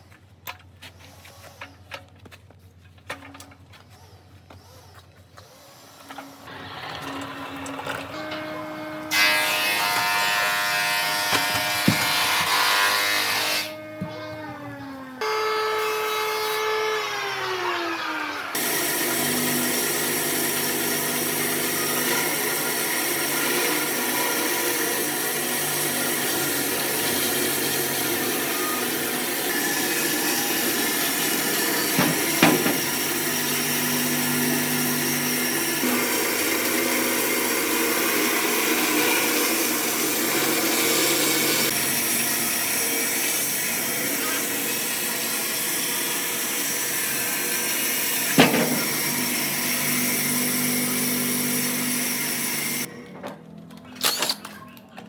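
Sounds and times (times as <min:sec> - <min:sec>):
power tools whining on wood: 0:04.5 - 0:52.9
sharp knocks: 0:31.9 - 0:33.1.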